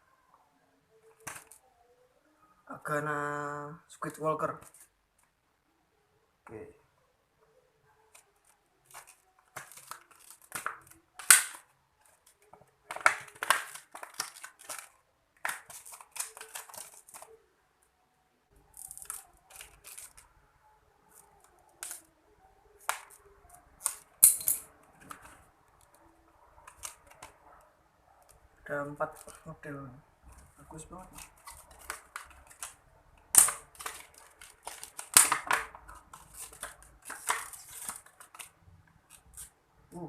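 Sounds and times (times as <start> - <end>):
sharp plastic crackle: 1.0 - 1.6, 8.0 - 17.4, 18.5 - 20.3, 21.0 - 22.1, 22.7 - 27.4, 30.2 - 40.0
plastic packaging crinkling: 8.1 - 17.4, 18.6 - 20.3, 30.4 - 39.6.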